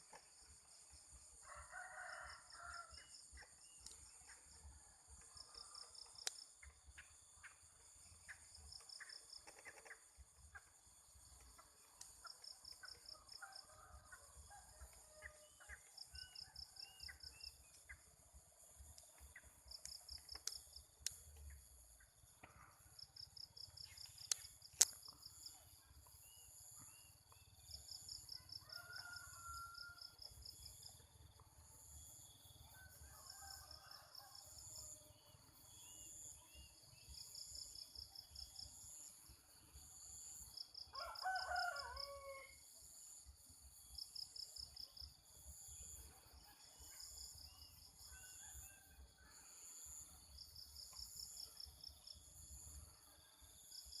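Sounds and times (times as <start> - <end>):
insects chirping in pulsed trills: 0.0 - 54.0
rooster crowing: 1.4 - 3.0, 28.4 - 30.2, 40.9 - 42.6
sharp clicks: 23.9 - 25.2
high insect hiss: 35.8 - 46.0.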